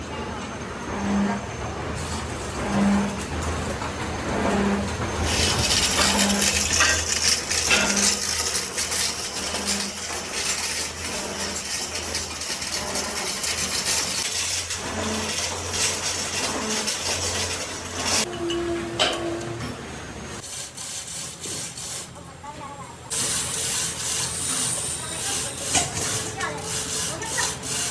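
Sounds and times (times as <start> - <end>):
machine running: 0.6 - 20.4
metal-on-metal clinks: 5.2 - 18.3.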